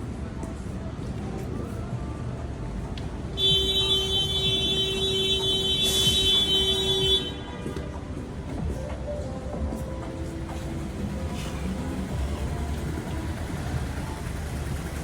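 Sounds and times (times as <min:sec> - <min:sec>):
street traffic noise: 0:00.0 - 0:15.0
vehicle horn blast: 0:03.4 - 0:07.9.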